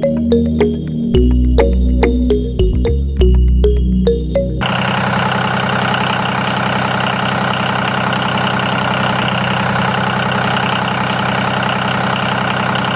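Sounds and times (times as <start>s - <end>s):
motor running steadily: 4.6s - 12.9s.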